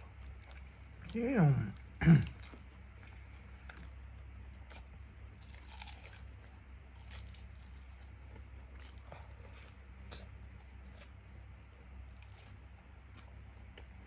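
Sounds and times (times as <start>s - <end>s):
crunching and chewing fried chicken: 0.0s - 14.0s.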